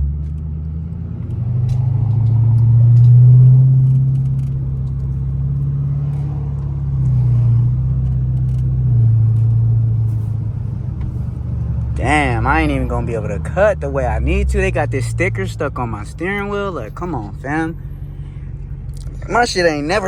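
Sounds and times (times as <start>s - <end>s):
car engine running: 0.0s - 20.0s
man talking: 12.0s - 17.8s, 19.0s - 20.0s.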